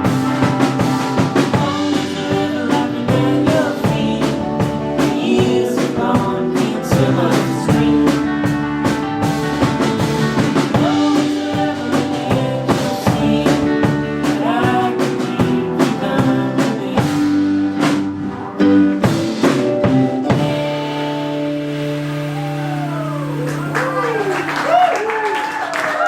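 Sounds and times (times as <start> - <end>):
drum kit hits: 0.0 - 18.3, 19.0 - 23.4
guitar: 0.0 - 26.0
sung vocals: 1.1 - 9.4, 10.6 - 18.0, 22.3 - 24.9.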